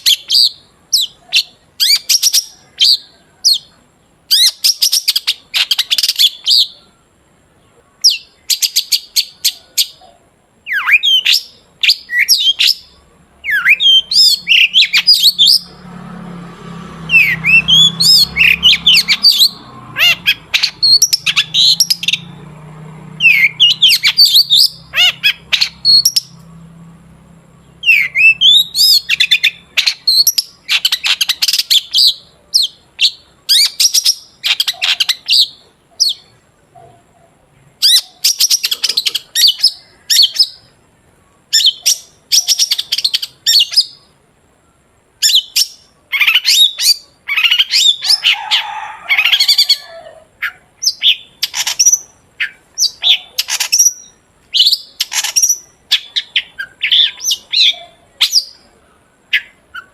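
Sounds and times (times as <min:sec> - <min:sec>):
shrike singing chattering phrases: 0:17.1 - 0:26.5, 0:27.1 - 0:59.9.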